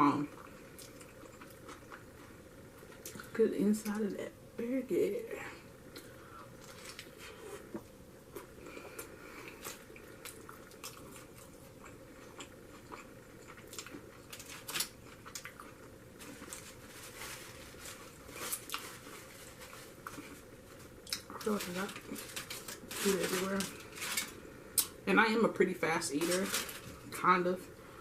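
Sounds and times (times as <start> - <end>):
person chewing with mouth clicks: 0.3 - 2.1, 5.9 - 14.4.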